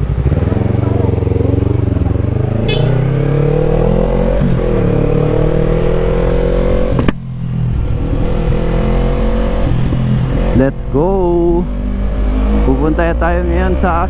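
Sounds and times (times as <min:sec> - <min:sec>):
motorcycle engine idling: 0:00.0 - 0:03.0.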